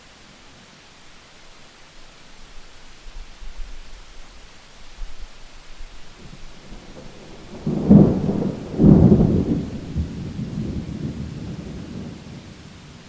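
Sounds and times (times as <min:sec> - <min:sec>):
steady rain: 0:00.0 - 0:13.0
thunder cracks and rumble: 0:06.2 - 0:12.9.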